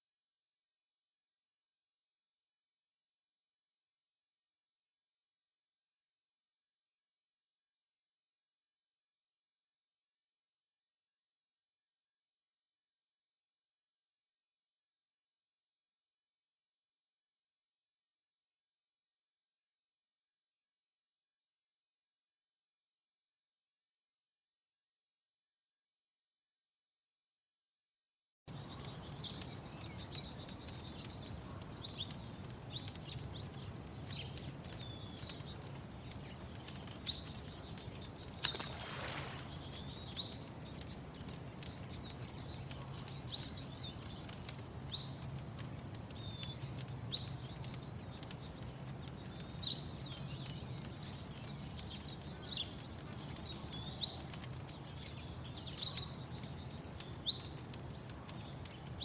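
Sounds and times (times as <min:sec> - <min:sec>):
faint crackling clicks: 0:28.5 - 0:59.0
small birds chirping: 0:28.5 - 0:59.0.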